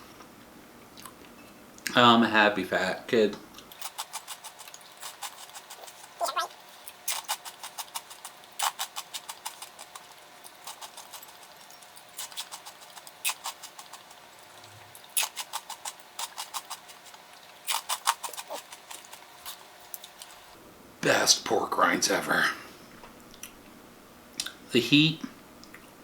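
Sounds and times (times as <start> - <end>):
chewing crunchy pork rinds: 3.5 - 20.6.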